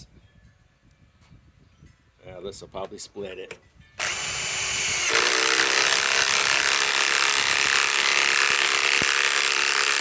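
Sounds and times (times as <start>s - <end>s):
impact wrench running under load: 4.0s - 10.0s.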